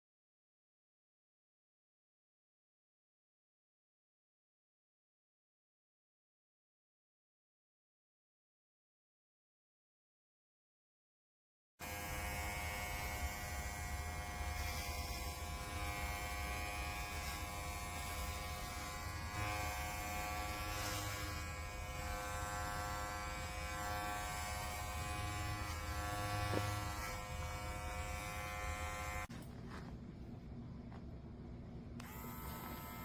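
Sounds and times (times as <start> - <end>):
electric hair trimmer buzzing: 11.8 - 29.3, 32.0 - 33.0.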